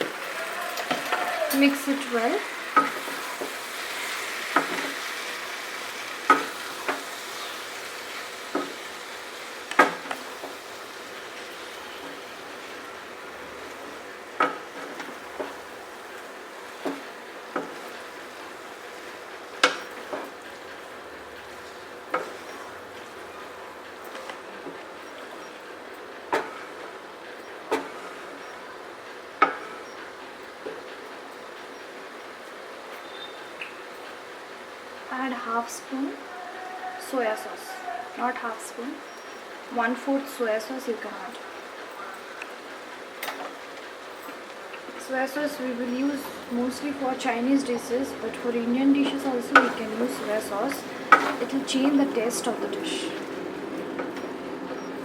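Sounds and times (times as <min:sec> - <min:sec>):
chicken sizzling in a pan: 0:00.0 - 0:23.7
food frying hiss: 0:00.0 - 0:55.0.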